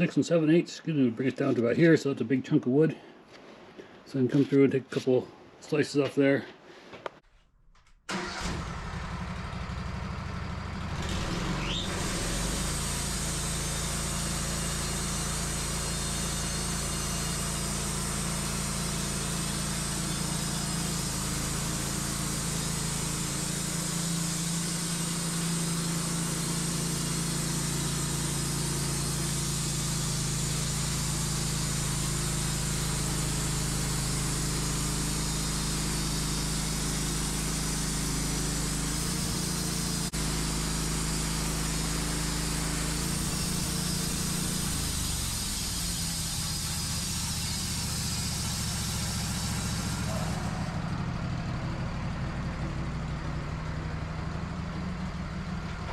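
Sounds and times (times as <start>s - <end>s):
sawmill gas engine: 8.1s - 55.9s
band saw cutting log: 10.9s - 51.8s.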